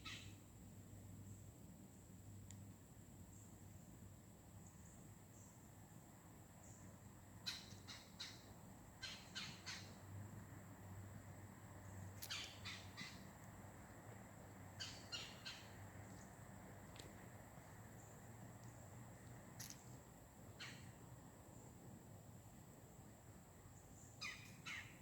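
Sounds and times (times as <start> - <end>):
bird harsh calls: 12.2 - 13.2, 14.8 - 15.8.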